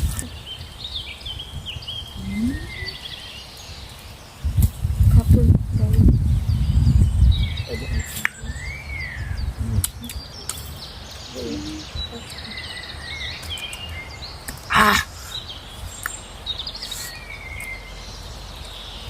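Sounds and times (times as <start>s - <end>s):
small birds chirping: 0.0s - 19.0s
low outdoor rumble: 4.5s - 13.1s.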